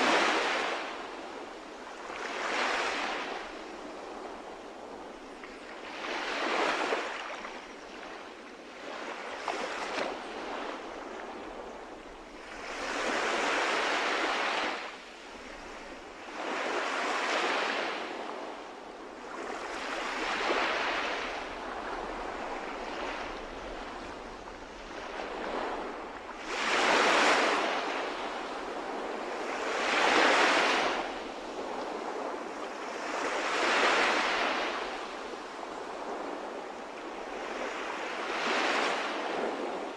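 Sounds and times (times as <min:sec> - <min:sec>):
sea waves washing onto shore: 0:00.0 - 0:39.9.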